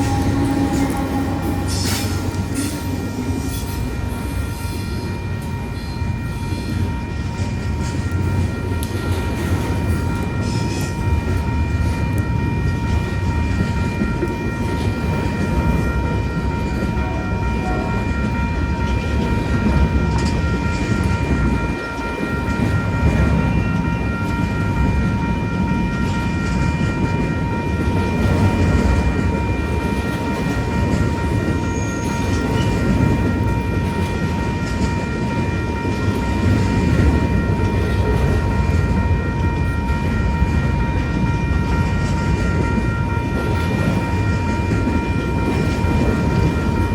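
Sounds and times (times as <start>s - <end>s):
high-pitched tone: 0.0s - 7.2s
faint steady high tones: 0.0s - 46.9s
train passing on rails: 0.0s - 46.9s.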